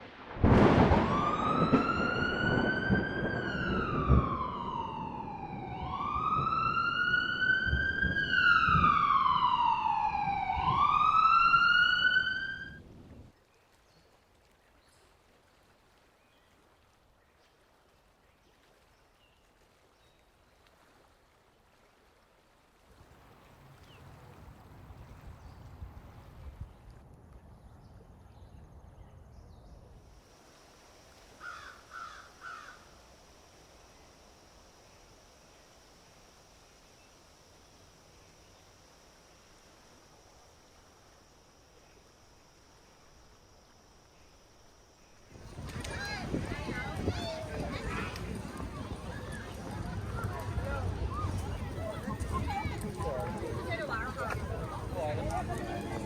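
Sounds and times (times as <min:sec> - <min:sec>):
rumbling background noise: 0:00.0 - 0:13.3, 0:45.3 - 0:56.0
siren wailing: 0:00.6 - 0:12.8.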